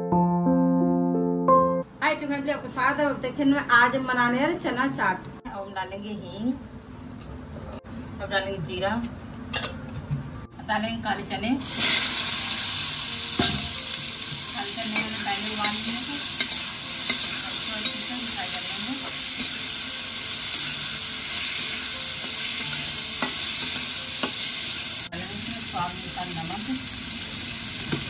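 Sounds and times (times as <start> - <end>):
chickpeas sizzling in hot oil: 11.6 - 28.0.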